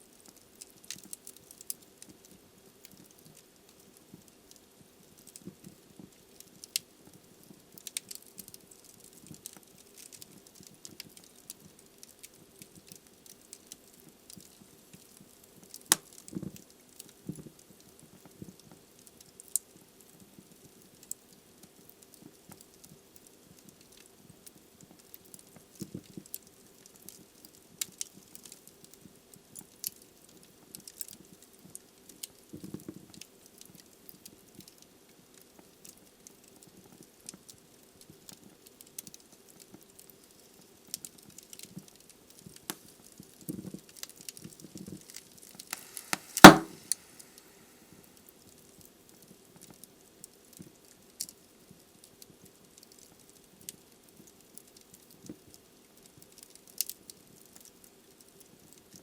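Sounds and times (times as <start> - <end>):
wood fire crackling: 0.0 - 59.0
loud sharp pop from fire: 45.6 - 47.5.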